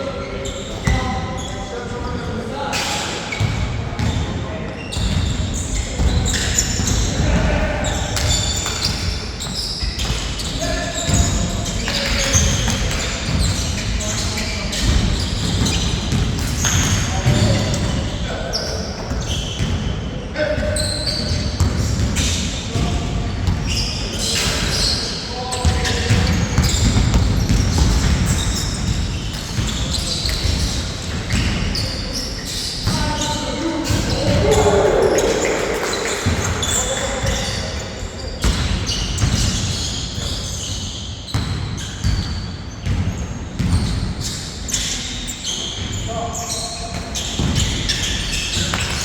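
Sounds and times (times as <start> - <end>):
sneakers squeaking on floor: 0.0 - 49.0
basketball bouncing on court: 4.9 - 18.2, 19.0 - 19.9, 20.6 - 24.9, 25.6 - 37.8, 38.4 - 44.9, 46.9 - 49.0
players calling out: 32.5 - 38.3.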